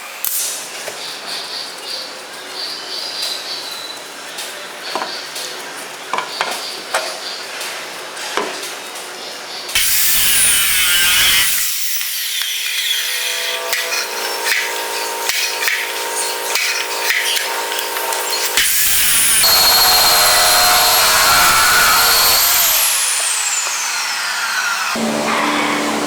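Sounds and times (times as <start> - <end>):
power tool whining: 9.8 - 26.0.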